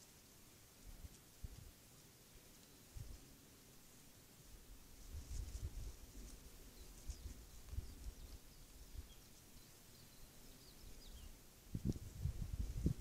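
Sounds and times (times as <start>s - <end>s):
small bird chirping: 6.6s - 11.9s.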